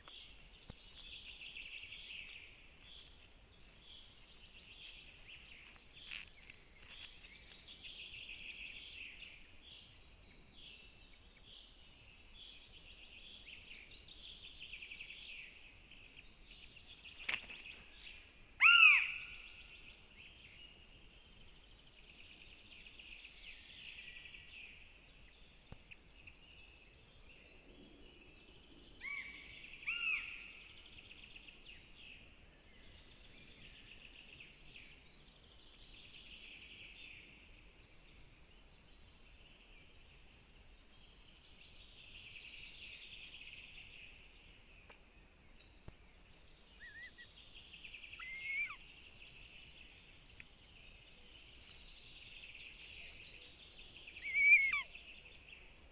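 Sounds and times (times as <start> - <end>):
birds singing: 0.0 - 55.9
short whistled bird calls: 46.8 - 47.4, 48.0 - 48.8, 54.2 - 55.0.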